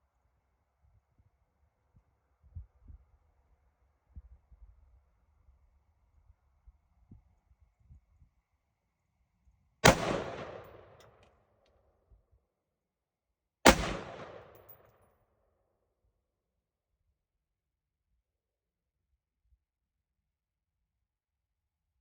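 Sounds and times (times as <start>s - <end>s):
rifle shots with echo: 9.8s - 11.2s, 13.7s - 14.9s.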